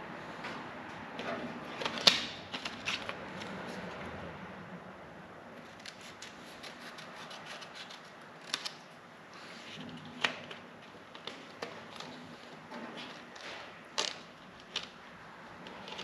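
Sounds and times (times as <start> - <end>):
scissors snipping paper: 5.7 - 8.9.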